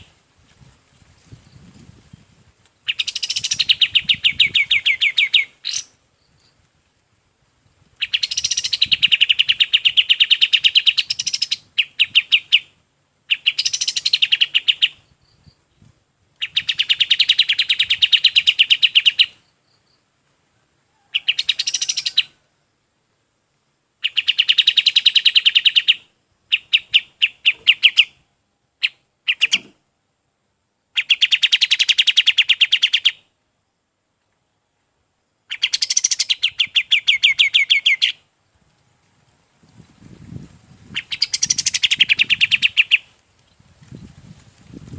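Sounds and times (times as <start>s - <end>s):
bird singing rattling trills: 8.0s - 12.6s, 35.5s - 38.2s, 40.9s - 44.1s.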